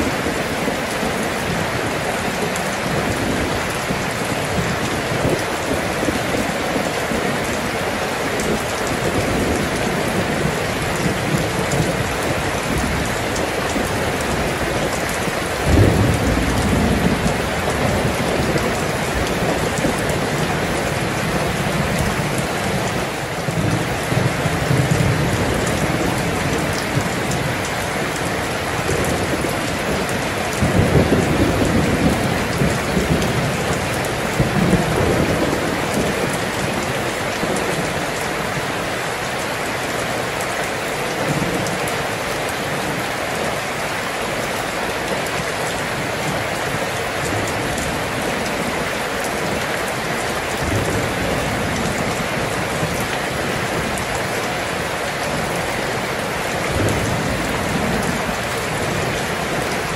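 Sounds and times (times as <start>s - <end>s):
thunder rumbling: 0.0s - 39.6s
heavy rain: 0.0s - 59.9s.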